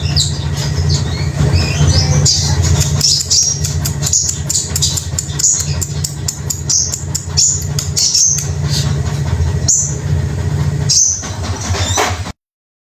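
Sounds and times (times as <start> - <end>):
songbird chirping: 0.0 - 8.9
steady low hum: 0.0 - 11.9.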